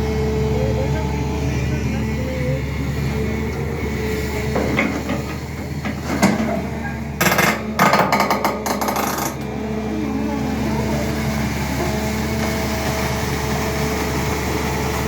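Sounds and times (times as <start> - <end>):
excavator diesel engine running: 0.0 - 15.0
metal clanking and rattling: 4.4 - 9.5.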